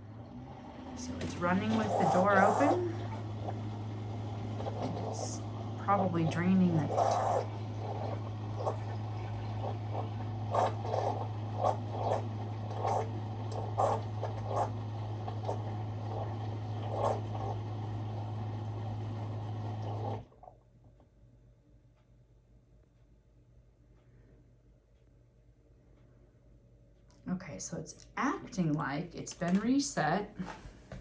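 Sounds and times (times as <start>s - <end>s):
water gurgling and splashing: 0.0s - 20.3s
drain pump humming: 0.0s - 20.5s.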